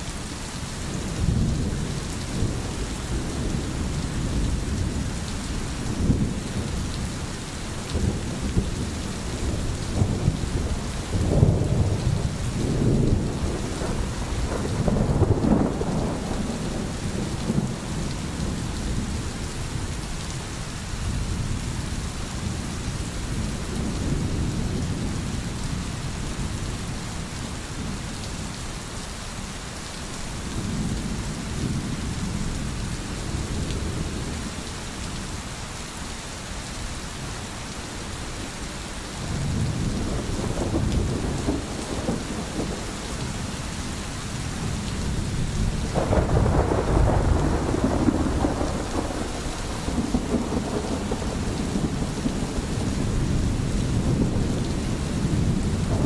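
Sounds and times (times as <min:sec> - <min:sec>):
heavy rain hissing: 0:00.0 - 0:56.0
rolling thunder: 0:07.9 - 0:19.8, 0:39.3 - 0:43.5, 0:44.4 - 0:56.0.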